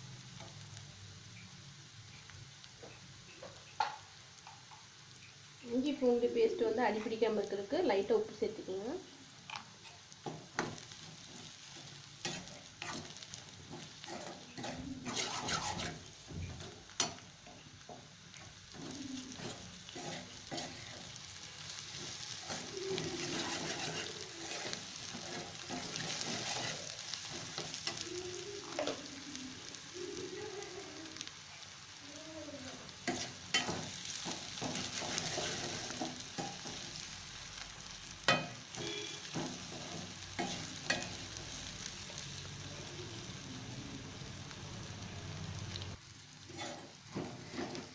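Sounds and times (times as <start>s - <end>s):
food sizzling in hot oil: 0.0s - 47.9s
spoon scraping a pan: 9.5s - 28.1s, 33.0s - 37.1s, 38.3s - 41.3s, 46.5s - 47.9s.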